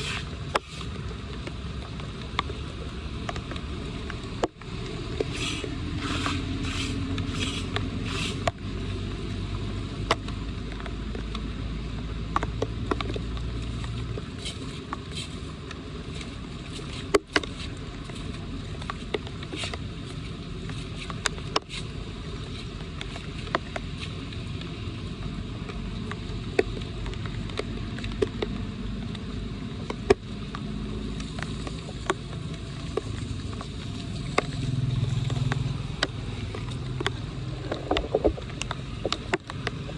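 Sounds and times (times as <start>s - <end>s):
rasping strokes: 0.0s - 1.0s, 5.2s - 8.6s, 14.4s - 24.2s
water rushing into storm drain: 0.0s - 10.0s.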